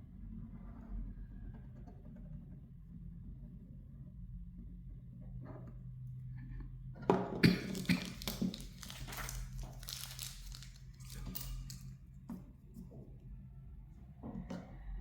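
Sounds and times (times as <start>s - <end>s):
low electrical hum: 1.5s - 15.0s
plastic rustling and crinkling: 7.4s - 12.0s.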